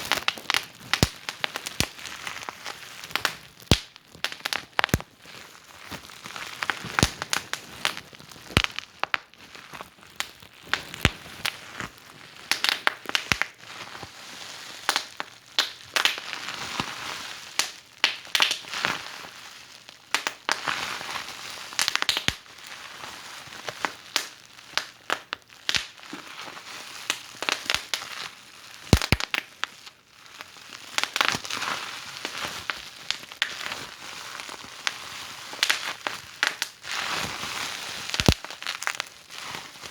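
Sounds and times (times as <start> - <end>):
wood fire crackling: 0.0 - 13.6, 14.9 - 16.3, 24.1 - 26.0, 28.8 - 29.5, 34.3 - 37.0, 37.7 - 39.1.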